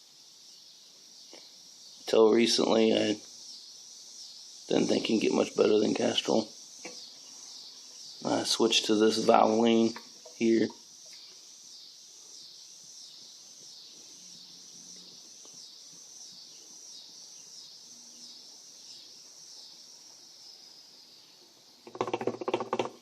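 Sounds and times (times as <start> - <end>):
insects trilling: 0.0 - 23.0
man's voice: 8.2 - 10.7.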